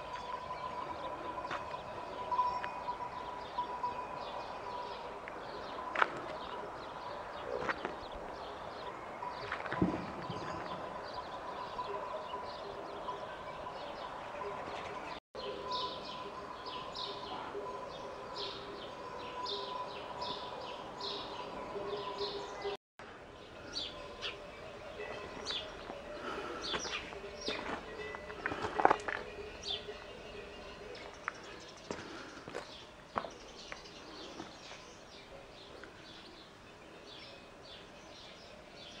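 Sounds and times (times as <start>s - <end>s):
small birds chirping: 23.4s - 39.0s.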